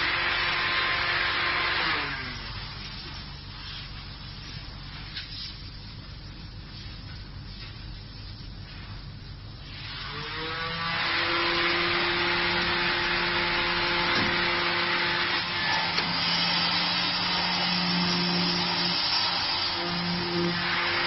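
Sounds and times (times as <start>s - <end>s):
router spindle motors whining: 0.0s - 2.7s, 9.8s - 21.0s.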